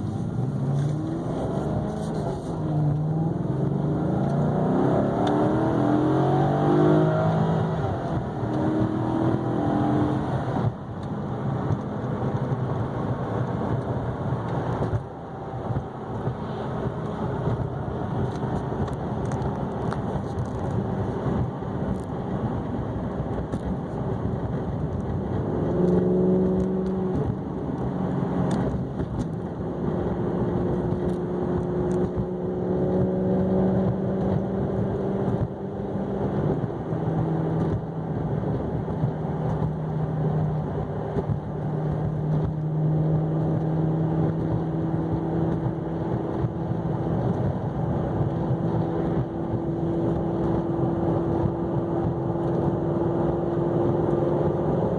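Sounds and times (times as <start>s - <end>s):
car engine and exhaust accelerating: 0.0s - 54.9s
road noise: 0.0s - 54.9s.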